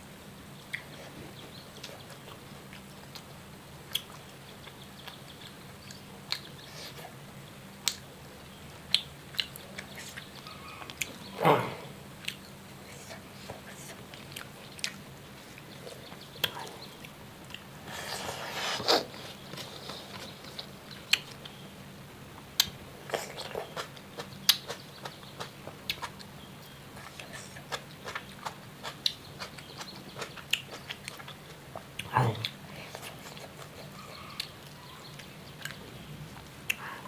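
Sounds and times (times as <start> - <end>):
faint steady hum: 0.0 - 37.0
chewing and biting: 22.6 - 26.3, 27.0 - 36.8.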